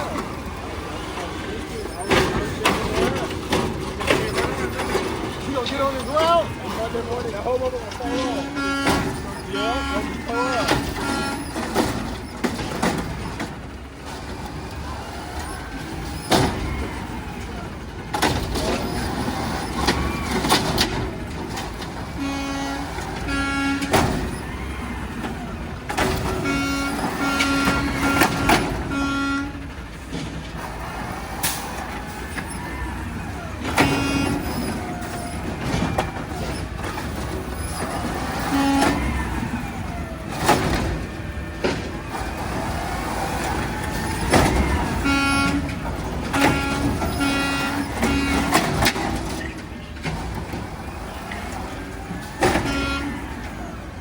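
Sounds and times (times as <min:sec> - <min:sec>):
truck engine running: 0:00.0 - 0:54.0
garbage truck horn blasts: 0:07.9 - 0:13.2, 0:18.2 - 0:30.2, 0:31.4 - 0:42.2, 0:43.0 - 0:53.9.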